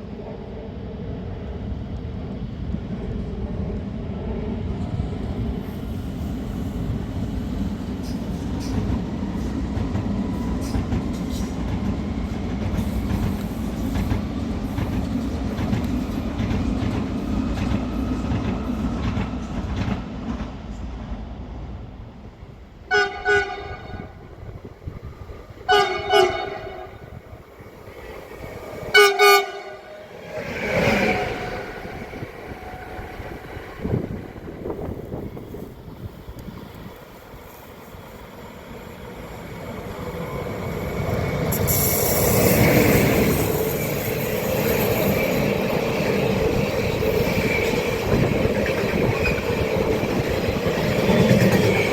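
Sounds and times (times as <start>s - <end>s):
train passing with clattering wheels: 0.0s - 51.9s
train horn blasts: 22.9s - 24.2s, 25.7s - 27.2s, 28.9s - 30.1s, 31.0s - 34.0s.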